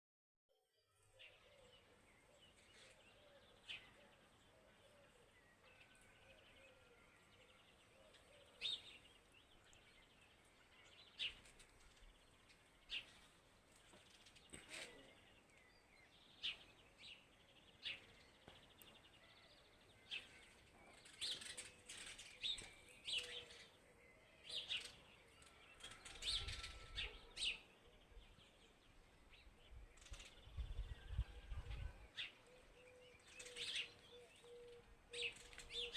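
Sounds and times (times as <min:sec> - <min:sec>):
birds chirping: 0:07.7 - 0:35.9.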